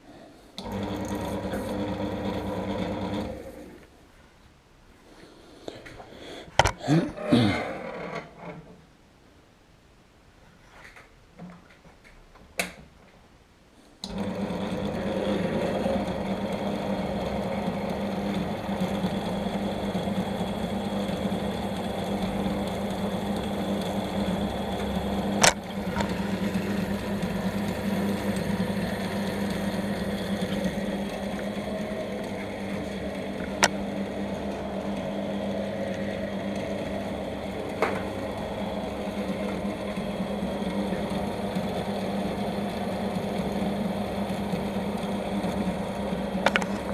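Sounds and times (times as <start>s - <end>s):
electric machine tool humming: 0.6s - 3.8s, 14.0s - 46.9s
sharp clicks or knocks: 6.6s - 6.8s.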